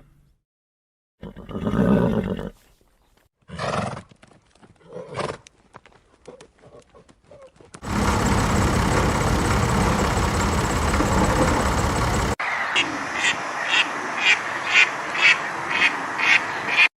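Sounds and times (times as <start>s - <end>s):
loud steady noise: 7.8s - 12.4s.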